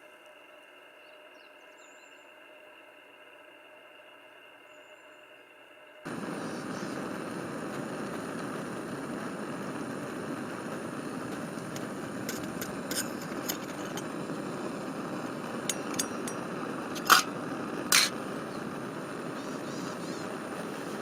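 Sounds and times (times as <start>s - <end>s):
campfire crackling: 6.0s - 21.0s
fire pops: 6.1s - 21.0s.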